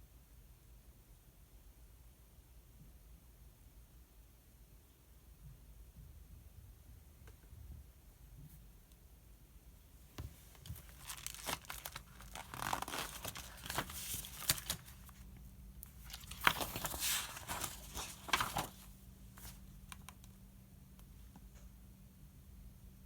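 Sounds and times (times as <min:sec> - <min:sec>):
book pages rustling: 0:10.2 - 0:20.2.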